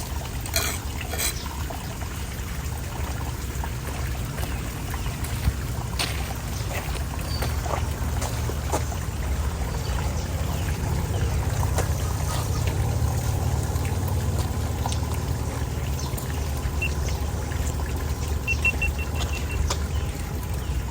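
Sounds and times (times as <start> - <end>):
water pouring down storm drain: 0.0 - 20.9
short high beeps: 18.5 - 19.5.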